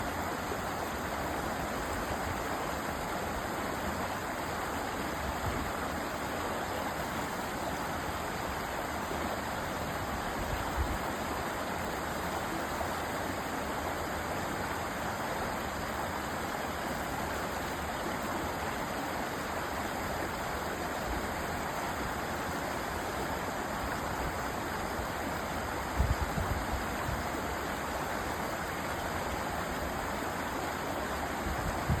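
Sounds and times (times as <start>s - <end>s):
stream rushing over rocks: 0.0s - 32.0s.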